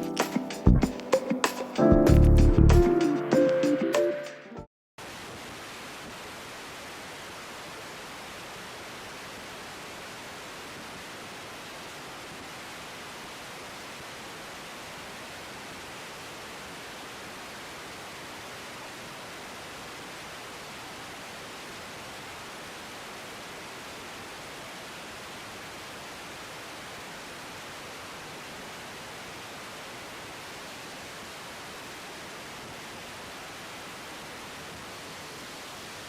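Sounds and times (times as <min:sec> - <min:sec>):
steady hiss: 0:00.0 - 0:01.9.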